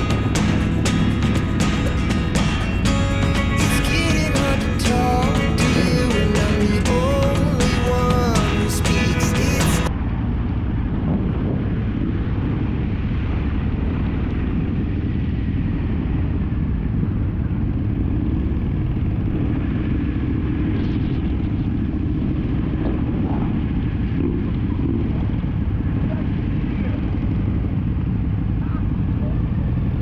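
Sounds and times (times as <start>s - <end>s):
motorcycle engine rumble: 0.0s - 9.9s
wind noise on microphone: 9.4s - 25.7s.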